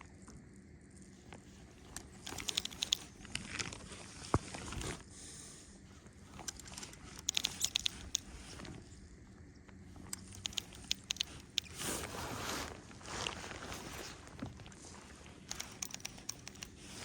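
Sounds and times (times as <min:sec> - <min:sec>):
light clicks and taps: 0:01.3 - 0:04.5, 0:06.3 - 0:08.9, 0:09.6 - 0:11.9, 0:14.3 - 0:17.0.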